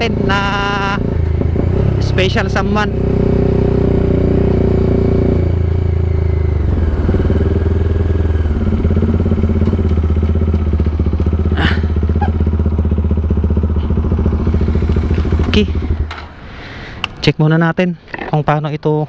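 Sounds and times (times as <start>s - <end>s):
motorcycle engine idling: 5.5s - 16.5s.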